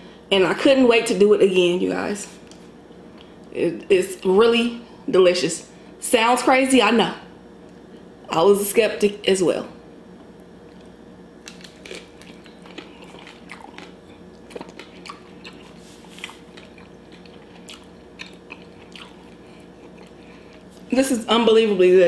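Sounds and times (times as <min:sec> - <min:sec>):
faint steady hum: 0:00.0 - 0:22.0
biting and chewing with crunches: 0:10.6 - 0:20.9.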